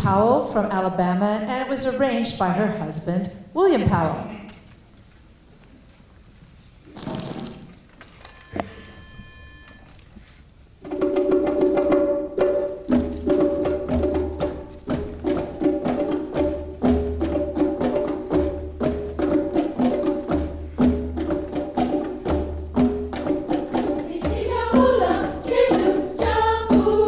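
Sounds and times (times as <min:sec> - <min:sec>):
repeating percussion pattern: 0:10.9 - 0:27.0
choir singing: 0:23.7 - 0:27.0.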